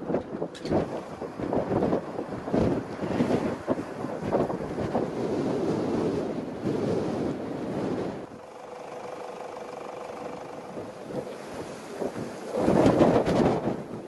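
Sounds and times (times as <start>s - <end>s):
faint hum: 0.0s - 14.0s
wind gusting against microphone: 0.0s - 14.0s.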